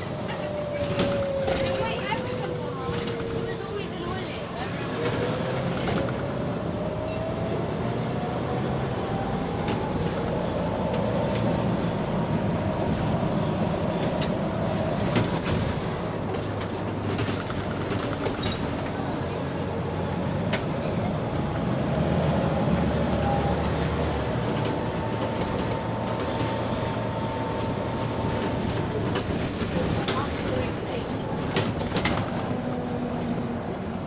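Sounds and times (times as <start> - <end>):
bus engine humming: 0.0 - 34.0
bodywork rattles and clicks: 15.1 - 18.9.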